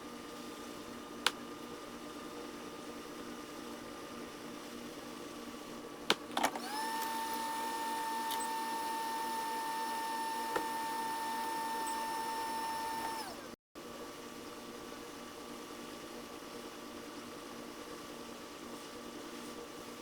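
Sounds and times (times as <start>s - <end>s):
small electric motor whining: 6.6s - 13.5s.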